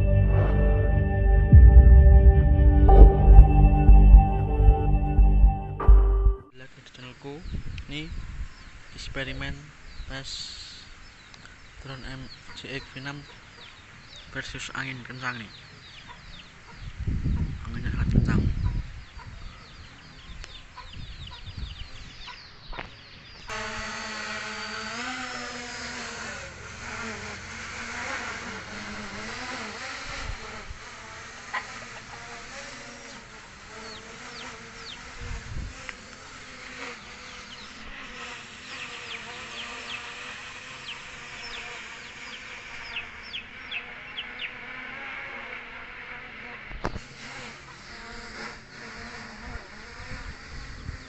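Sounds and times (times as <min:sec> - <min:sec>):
drone propellers buzzing: 0:00.0 - 0:06.5, 0:23.5 - 0:51.0
wind rumble on microphone: 0:07.4 - 0:09.6, 0:16.7 - 0:22.3, 0:35.1 - 0:35.9, 0:49.5 - 0:51.0.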